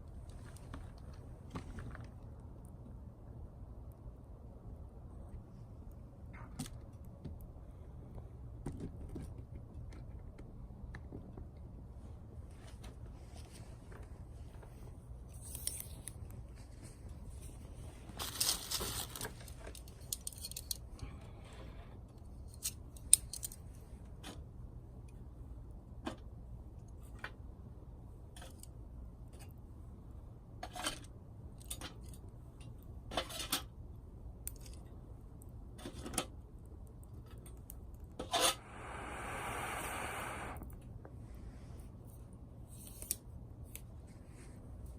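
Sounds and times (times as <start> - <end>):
soft hiss: 38.2 - 44.9.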